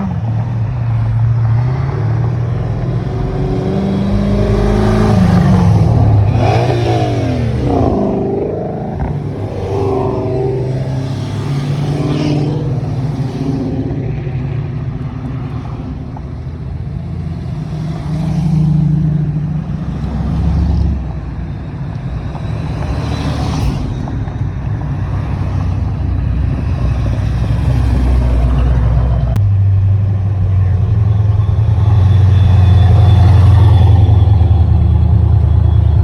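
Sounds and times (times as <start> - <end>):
car engines running: 0.0 - 36.0.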